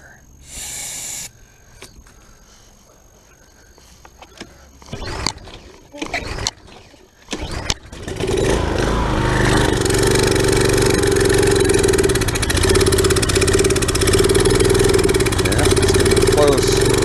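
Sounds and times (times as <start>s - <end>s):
small engine running: 0.5s - 1.3s, 4.9s - 17.0s.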